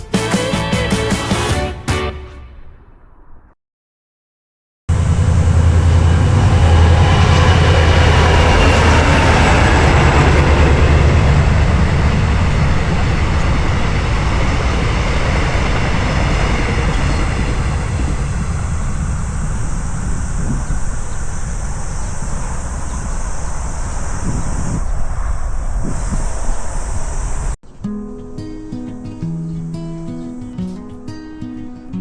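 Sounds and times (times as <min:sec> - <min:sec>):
train passing with rumble: 0:04.9 - 0:27.6.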